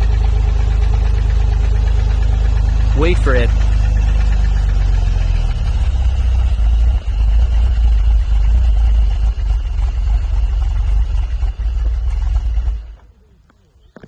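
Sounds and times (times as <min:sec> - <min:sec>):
car engine idling: 0:00.0 - 0:13.9.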